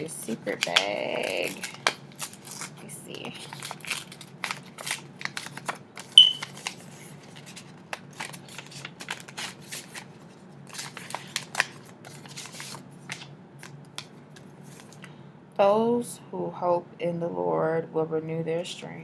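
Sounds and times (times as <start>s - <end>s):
paper rustling: 0.5s - 15.1s.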